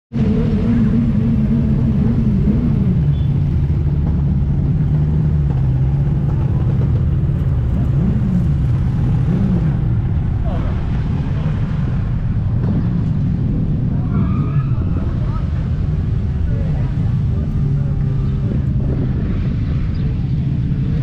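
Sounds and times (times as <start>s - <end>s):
motorcycle engine running: 0.2s - 14.1s, 15.2s - 21.0s.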